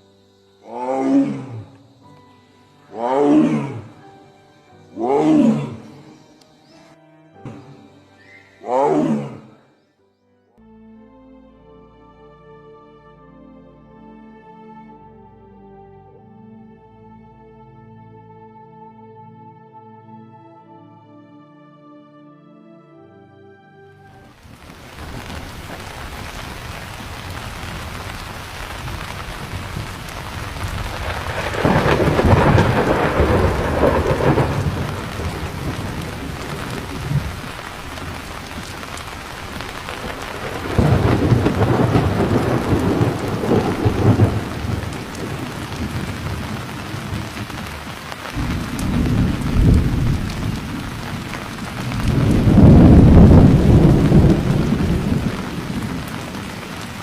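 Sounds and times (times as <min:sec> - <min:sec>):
heavy rain: 0:02.9 - 0:04.2, 0:24.1 - 0:57.0
thunder rolling: 0:24.6 - 0:57.0.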